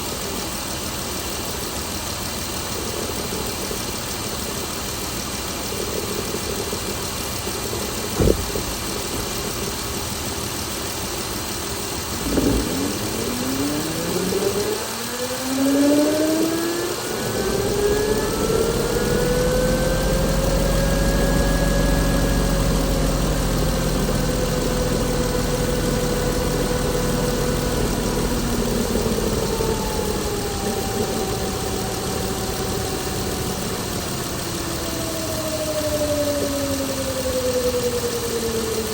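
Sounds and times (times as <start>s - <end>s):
car engine running: 0.0s - 38.9s
whining tone: 2.0s - 38.9s
knock: 8.2s - 8.7s.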